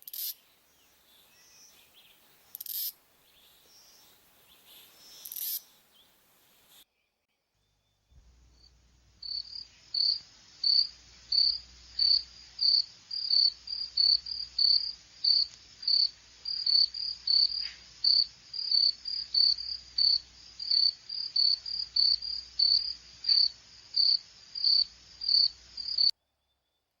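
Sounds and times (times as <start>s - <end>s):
squirrel chirping: 0.0s - 0.4s, 1.4s - 6.1s.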